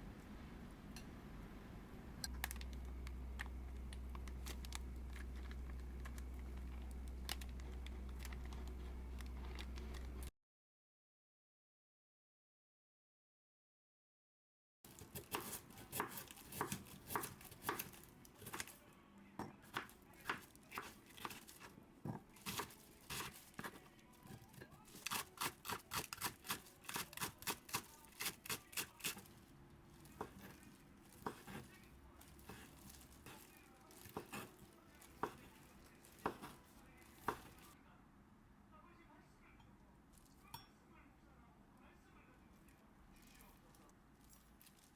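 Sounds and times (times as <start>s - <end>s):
knife cutting strokes: 24.9s - 29.3s.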